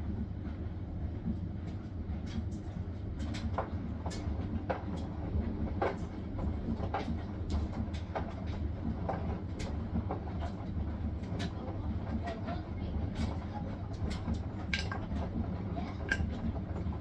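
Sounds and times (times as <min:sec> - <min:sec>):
washing machine drum rumbling: 0:14.0 - 0:17.0
clicks and knocks: 0:14.7 - 0:15.1.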